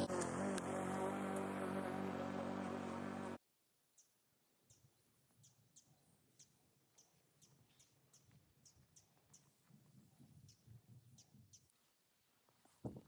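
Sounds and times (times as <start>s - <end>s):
steady multi-tone drone: 0.0s - 3.4s.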